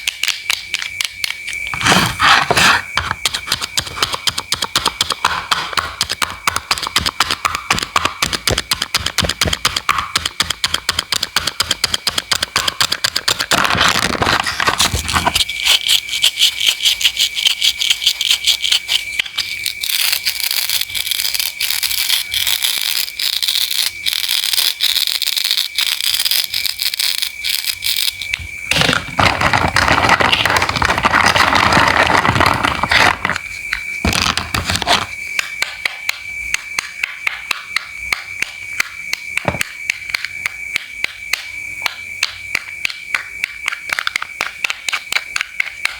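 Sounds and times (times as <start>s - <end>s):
scraping on cutting board: 1.7s - 3.5s, 28.7s - 35.1s.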